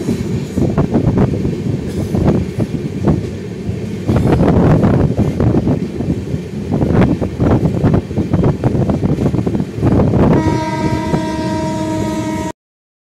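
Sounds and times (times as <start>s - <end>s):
train wheels clattering: 0.0s - 10.0s
train horn: 10.2s - 12.6s.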